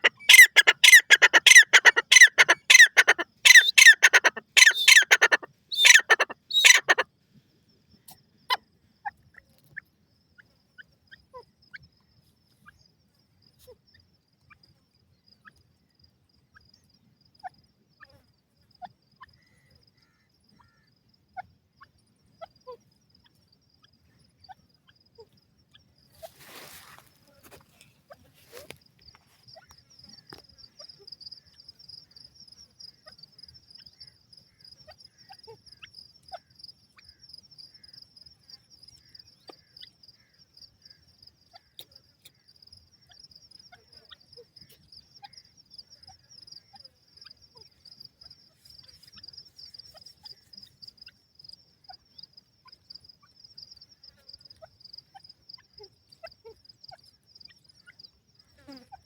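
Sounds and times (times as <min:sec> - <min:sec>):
insects trilling: 0:00.0 - 0:07.1, 0:10.1 - 0:59.0
faint clicks and chirps: 0:09.0 - 0:15.9, 0:28.6 - 0:58.9.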